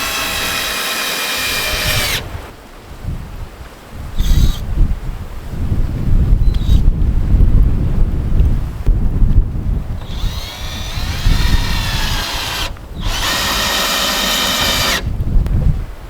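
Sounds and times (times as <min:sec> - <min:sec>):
power drill running: 0:00.0 - 0:02.5, 0:04.2 - 0:04.6, 0:06.5 - 0:06.9, 0:10.0 - 0:15.1
wind rumbling on microphone: 0:00.0 - 0:16.0.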